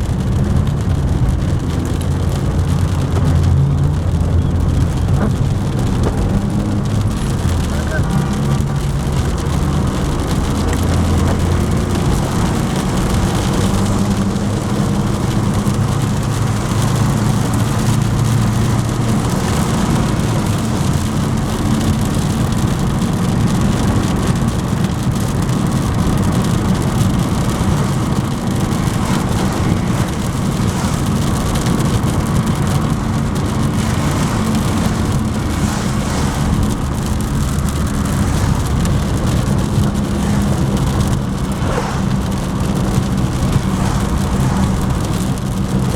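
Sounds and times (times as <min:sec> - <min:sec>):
car engine and road noise: 0:00.0 - 0:45.9
rain hissing on car: 0:00.0 - 0:45.9.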